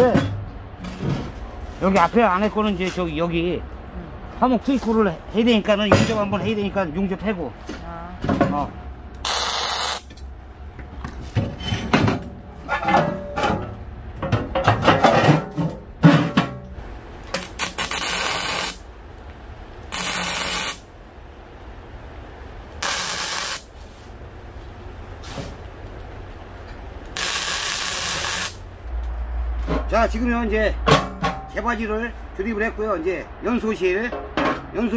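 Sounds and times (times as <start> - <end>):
arc welding hiss: 9.2 - 10.1, 17.4 - 18.8, 19.9 - 20.9, 22.8 - 23.8, 27.1 - 28.6.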